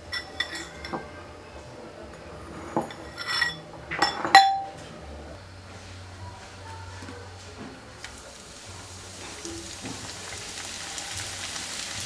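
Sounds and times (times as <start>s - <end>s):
dishes and utensils clinking: 0.0s - 5.4s, 7.5s - 11.3s.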